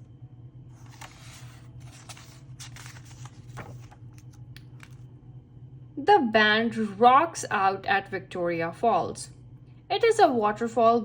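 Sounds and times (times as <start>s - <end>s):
faint low hum: 0.0s - 11.0s
book page rustling: 0.7s - 5.1s.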